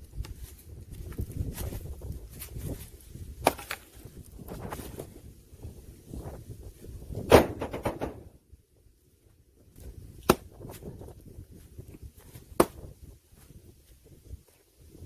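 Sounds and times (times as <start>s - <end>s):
axe chopping logs: 3.4s - 3.9s, 7.3s - 8.3s, 10.1s - 10.8s, 12.4s - 12.9s.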